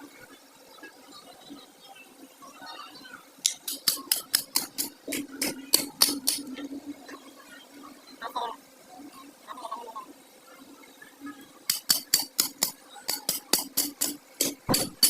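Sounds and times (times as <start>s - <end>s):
sharp taps: 3.4s - 6.5s, 11.7s - 15.0s.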